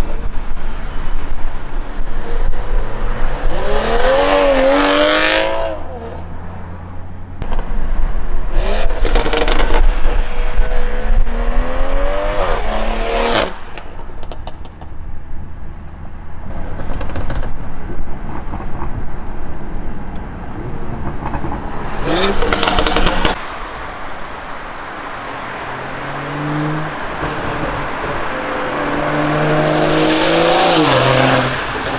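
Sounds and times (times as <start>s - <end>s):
car engine accelerating hard: 1.5s - 13.8s, 21.0s - 31.9s
exhaust cracks: 7.4s - 15.2s, 16.5s - 31.9s.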